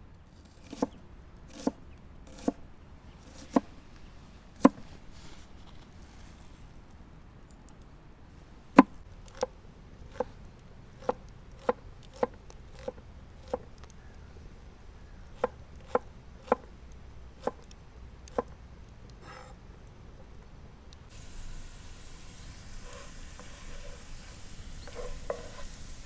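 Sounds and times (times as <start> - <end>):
knife chopping on cutting board: 11.0 - 13.6.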